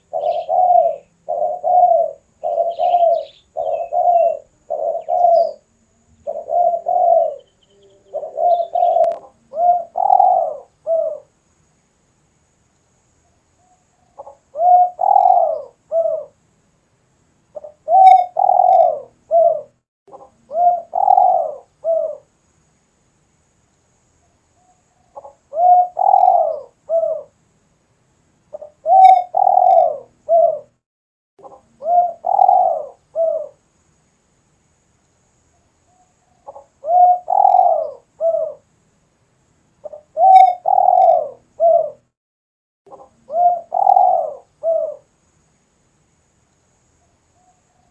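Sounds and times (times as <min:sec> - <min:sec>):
dove cooing: 0:00.0 - 0:11.3, 0:13.6 - 0:16.4, 0:17.6 - 0:22.3, 0:24.6 - 0:27.4, 0:28.5 - 0:30.8, 0:31.4 - 0:33.6, 0:35.9 - 0:38.7, 0:39.8 - 0:42.1, 0:42.9 - 0:45.1.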